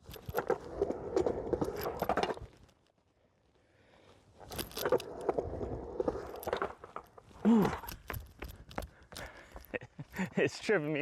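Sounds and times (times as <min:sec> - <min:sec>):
skateboard wheels on concrete: 0:00.0 - 0:02.7, 0:04.3 - 0:08.9.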